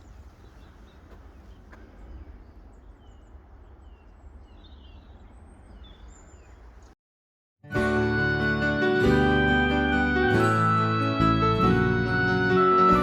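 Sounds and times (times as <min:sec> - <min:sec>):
low outdoor rumble: 0:00.0 - 0:07.0
small birds chirping: 0:00.0 - 0:07.0.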